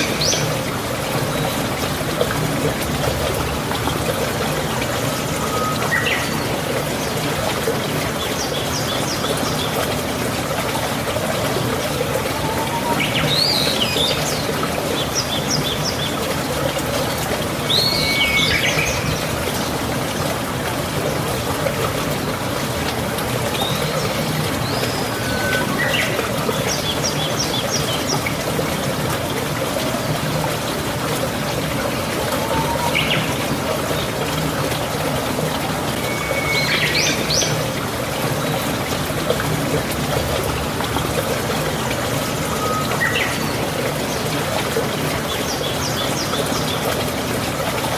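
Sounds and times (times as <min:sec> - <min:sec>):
birds chirping and trilling: 0:23.6 - 0:28.3, 0:32.3 - 0:33.4.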